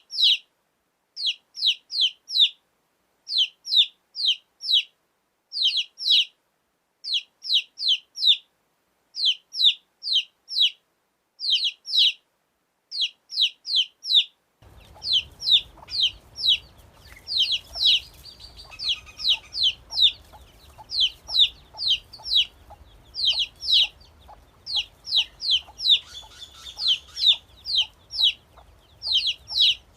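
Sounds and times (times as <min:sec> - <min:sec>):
low background noise: 0:00.0 - 0:29.9
baby chicks peeping: 0:00.1 - 0:00.4, 0:01.2 - 0:02.5, 0:03.3 - 0:04.9, 0:05.6 - 0:06.3, 0:07.0 - 0:08.4, 0:09.2 - 0:10.8, 0:11.4 - 0:12.2, 0:12.9 - 0:29.9.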